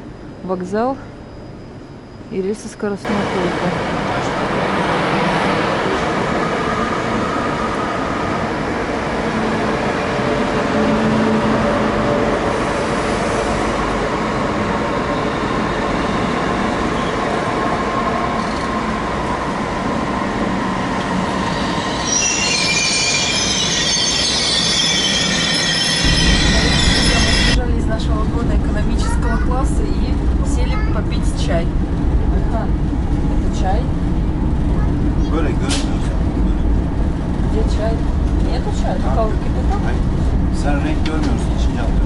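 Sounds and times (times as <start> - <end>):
train rumble and hum: 0.0 - 42.0
wheel and brake squeals: 21.4 - 27.6.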